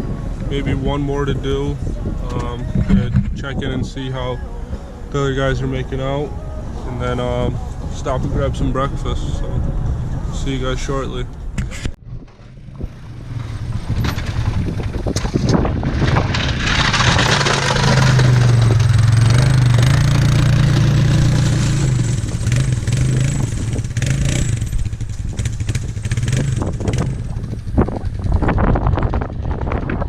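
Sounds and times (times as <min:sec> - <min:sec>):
truck engine under load: 0:01.4 - 0:30.0
rushing scrape: 0:11.7 - 0:28.8.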